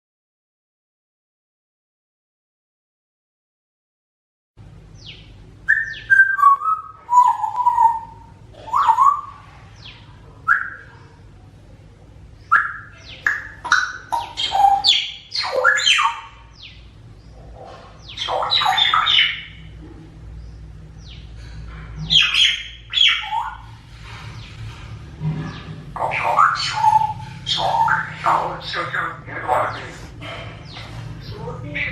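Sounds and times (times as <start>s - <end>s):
parrot whistling and chirping: 5.6s - 9.4s, 10.5s - 10.9s, 12.5s - 16.8s, 18.1s - 19.6s, 22.1s - 23.8s, 26.0s - 29.9s
parrot squawks: 5.7s - 9.4s, 10.5s - 10.9s, 12.5s - 16.8s, 18.1s - 19.7s, 22.1s - 23.8s, 25.9s - 30.1s.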